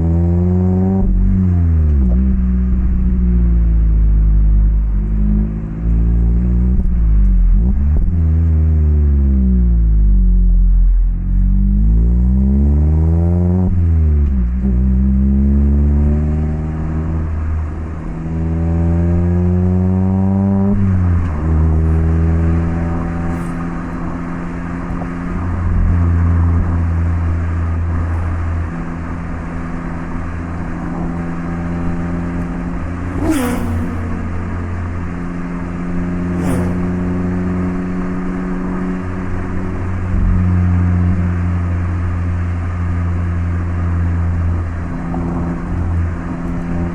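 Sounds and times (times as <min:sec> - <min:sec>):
car engine accelerating: 0:00.0 - 0:46.9
brief sharp sounds: 0:33.1 - 0:34.3, 0:36.4 - 0:36.9.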